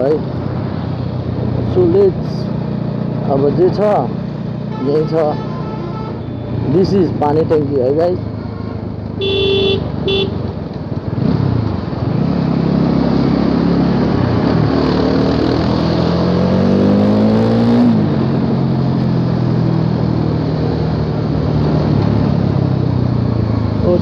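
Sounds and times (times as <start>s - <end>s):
wind and road rush: 0.0s - 24.0s
motorcycle engine accelerating: 10.1s - 24.0s.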